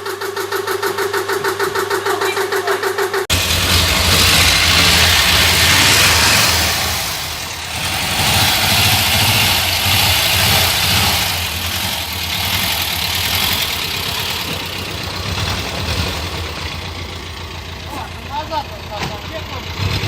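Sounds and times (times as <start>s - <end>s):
loud hiss: 3.3s - 17.8s.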